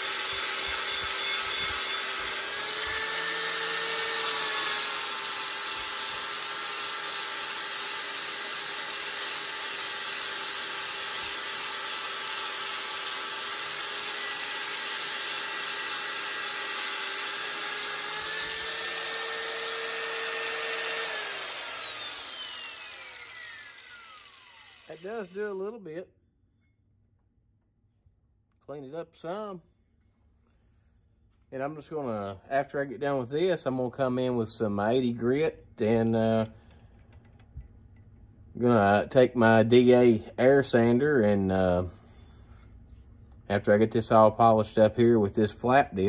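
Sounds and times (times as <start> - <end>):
angle grinder grinding steel: 0.0 - 25.6.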